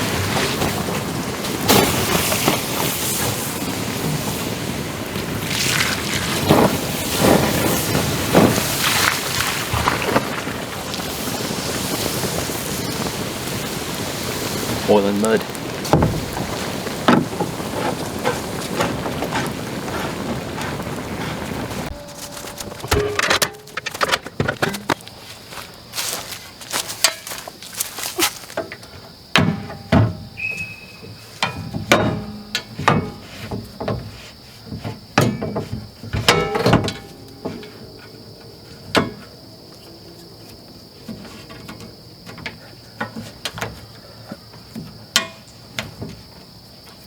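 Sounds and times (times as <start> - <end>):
high-pitched insect drone: 21.9 - 23.8, 30.2 - 31.4.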